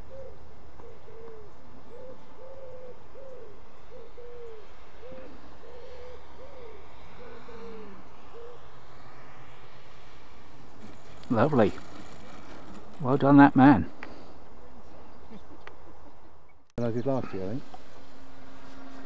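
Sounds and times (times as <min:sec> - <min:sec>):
bird hooting coos: 0:00.0 - 0:09.6.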